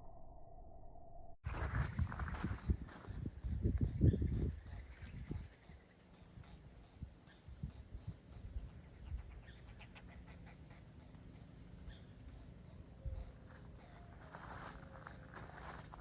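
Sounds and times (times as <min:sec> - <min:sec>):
high insect drone: 0:01.5 - 0:16.0
woodpecker buzzing begging call: 0:08.7 - 0:14.3.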